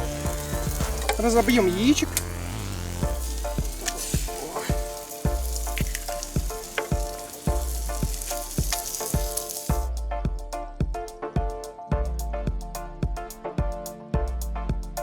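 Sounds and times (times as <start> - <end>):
background music: 0.0 - 15.0
food sizzling in a frying pan: 0.3 - 9.9.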